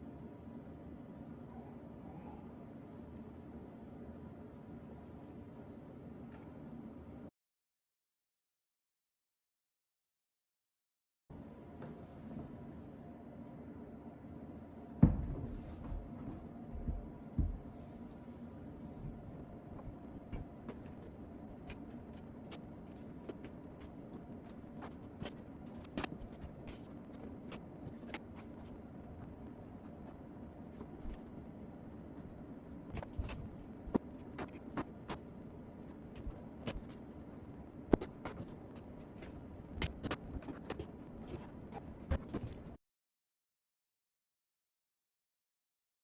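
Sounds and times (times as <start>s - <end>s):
steady low hum: 11.3s - 42.8s.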